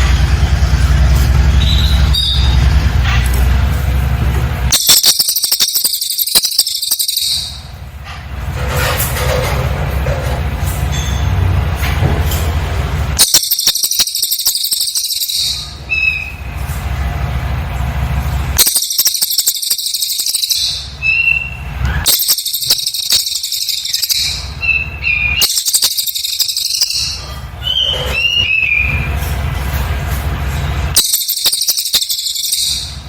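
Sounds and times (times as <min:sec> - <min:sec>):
bird rapid high chattering: 0:04.7 - 0:07.8, 0:13.2 - 0:16.5, 0:18.6 - 0:29.2, 0:30.9 - 0:33.0.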